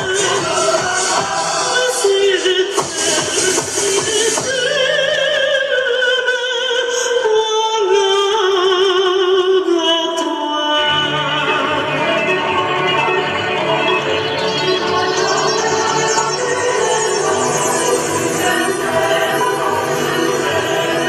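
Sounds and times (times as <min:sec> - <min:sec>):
person singing with vibrato: 0:00.0 - 0:21.0.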